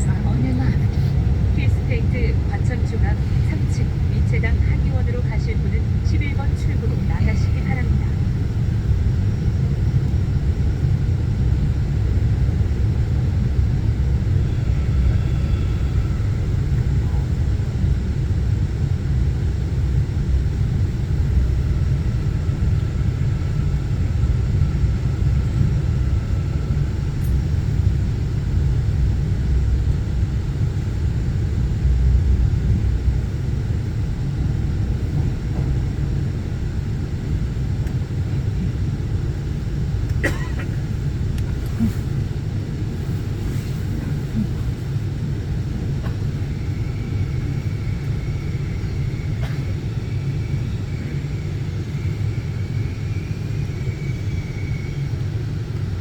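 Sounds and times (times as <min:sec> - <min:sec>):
faint whine: 0:00.0 - 0:56.0
subway train rumbling on track: 0:00.0 - 0:56.0.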